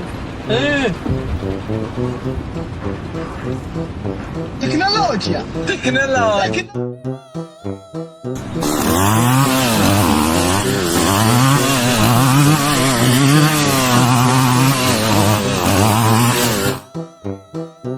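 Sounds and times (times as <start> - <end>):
small engine running: 8.4 - 16.9.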